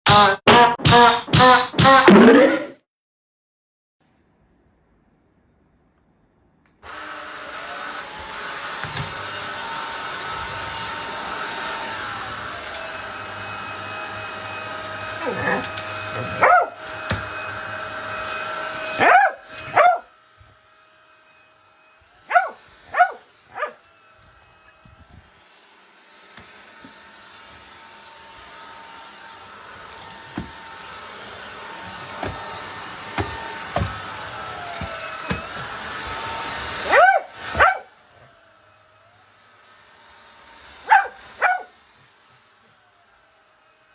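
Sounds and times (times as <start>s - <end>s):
vacuum cleaner whining: 6.8s - 43.9s
dog barking: 15.2s - 16.8s, 18.9s - 20.1s, 22.2s - 23.8s, 36.8s - 38.0s, 40.8s - 41.8s.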